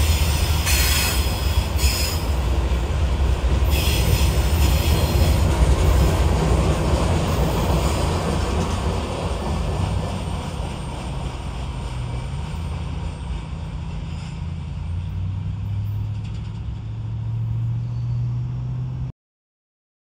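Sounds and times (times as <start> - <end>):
freight train rumbling: 0.0 - 19.1
deep engine drone: 14.4 - 19.1.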